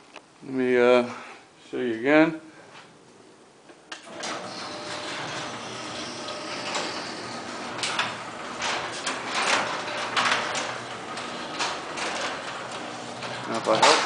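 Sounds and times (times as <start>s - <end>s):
garage door clunks and rattles: 4.0s - 14.0s
garage door opener running: 4.0s - 14.0s.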